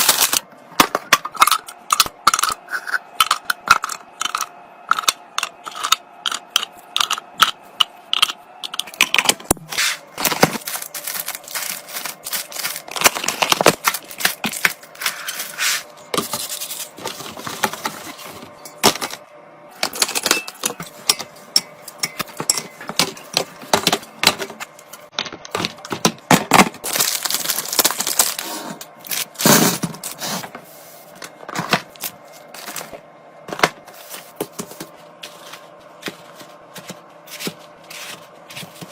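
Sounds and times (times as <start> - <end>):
small items clicking and tapping: 1.1 - 9.4
rustling and scraping: 9.7 - 18.6.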